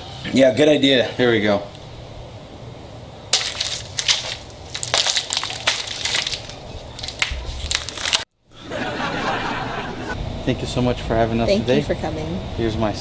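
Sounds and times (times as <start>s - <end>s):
cardboard filter crackling: 3.3s - 8.3s.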